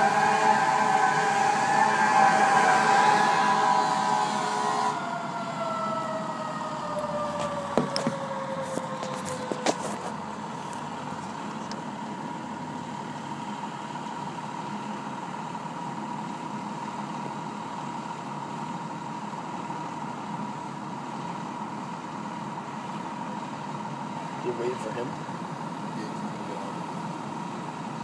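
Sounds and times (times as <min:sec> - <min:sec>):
steady high tone: 0:00.0 - 0:07.2
siren sliding down: 0:00.0 - 0:10.2
fire engine idling: 0:00.0 - 0:28.0.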